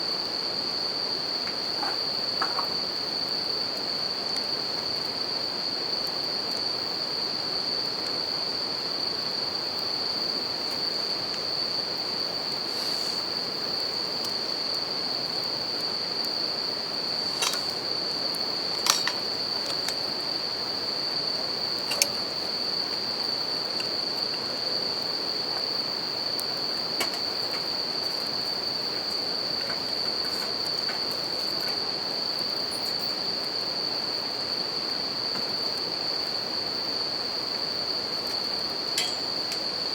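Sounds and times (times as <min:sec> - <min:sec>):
crickets singing: 0:00.0 - 0:39.9.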